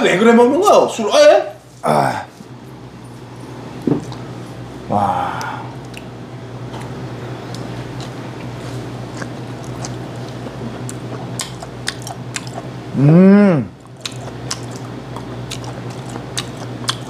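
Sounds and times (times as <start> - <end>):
person humming mmm: 4.9 - 6.0, 12.9 - 13.8
person chewing crunchy fish: 5.4 - 12.8, 13.8 - 17.0.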